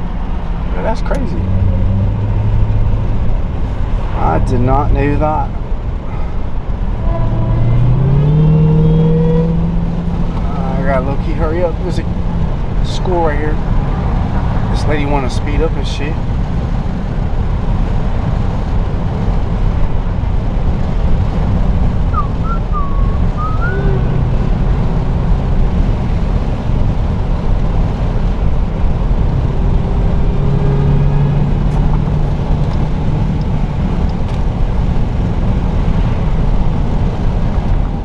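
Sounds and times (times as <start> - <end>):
low drone: 0.0 - 16.3
car engine rumbling inside cabin: 0.0 - 38.0.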